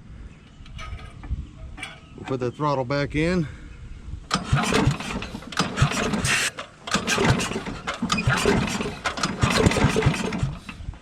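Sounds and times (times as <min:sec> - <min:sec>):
engine cranking without starting: 0:04.3 - 0:11.0.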